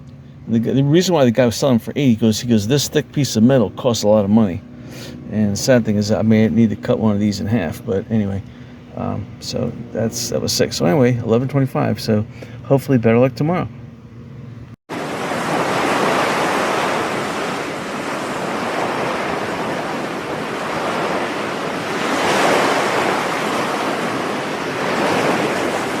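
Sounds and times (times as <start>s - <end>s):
steady rushing noise: 14.9s - 26.0s.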